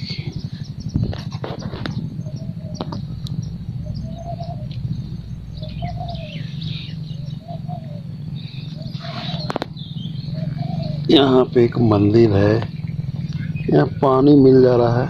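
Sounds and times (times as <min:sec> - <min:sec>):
doves cooing: 0:00.0 - 0:15.0
engine idling: 0:00.0 - 0:15.0
small birds chirping: 0:00.0 - 0:15.0.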